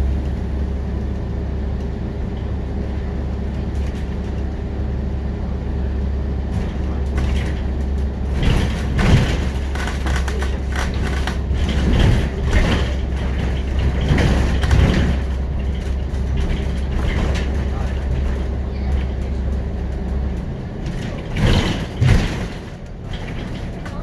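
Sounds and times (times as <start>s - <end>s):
bus body rattling and knocking: 0.0s - 24.0s
bus diesel engine drone: 0.0s - 24.0s.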